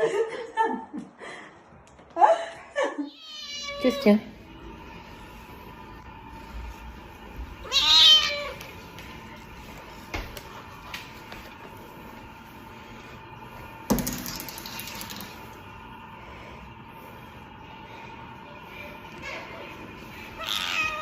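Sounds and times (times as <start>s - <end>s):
faint steady hum: 0.0s - 21.0s
cat meowing: 3.1s - 4.1s, 7.6s - 8.6s, 20.4s - 21.0s.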